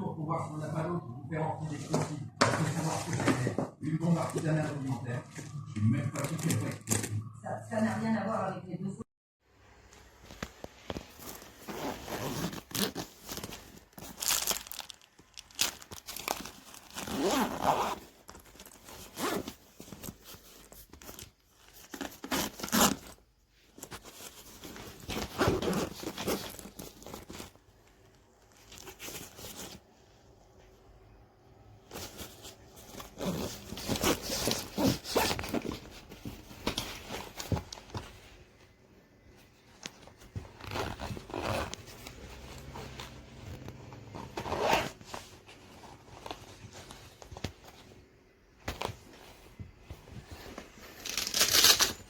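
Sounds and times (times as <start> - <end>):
plastic packaging crinkling: 11.0 - 23.1, 50.9 - 52.0.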